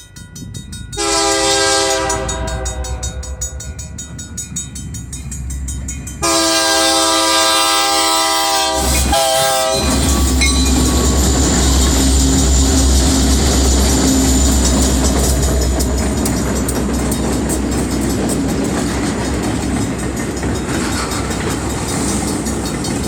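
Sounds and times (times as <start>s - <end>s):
locomotive passing rumble: 0.1s - 23.0s
train horn blasts: 1.0s - 3.6s, 6.2s - 10.7s.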